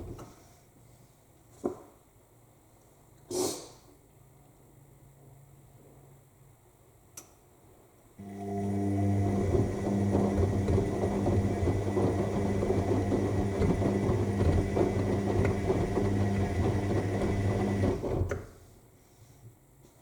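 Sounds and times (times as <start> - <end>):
washing machine motor hum: 8.2 - 18.4
laundry and water tumbling: 8.3 - 18.2.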